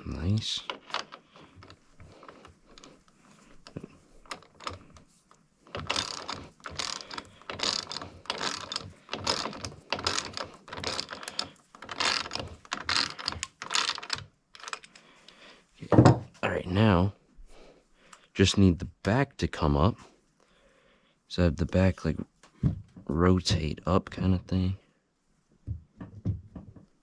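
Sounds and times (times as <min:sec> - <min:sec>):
socket ratchet clicking: 0:05.7 - 0:14.9.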